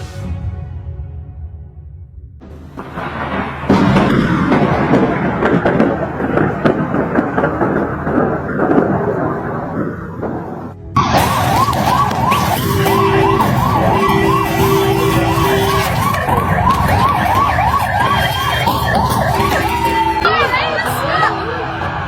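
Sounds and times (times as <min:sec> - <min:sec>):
low rumbling noise: 0:00.0 - 0:22.0
siren wailing in fast yelp: 0:11.0 - 0:22.0.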